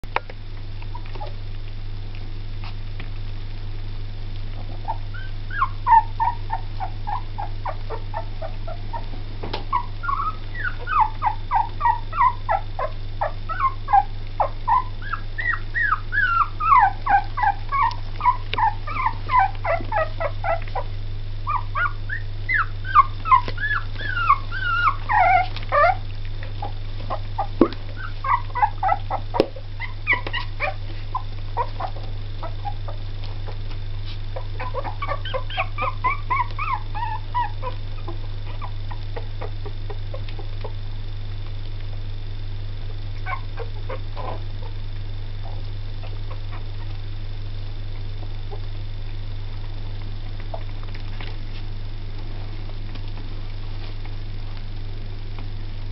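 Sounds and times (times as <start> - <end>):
steady low hum: 0.0 - 55.9
puppies whimpering and squeaking: 0.8 - 1.4, 4.6 - 40.8, 43.2 - 44.8, 45.4 - 47.0.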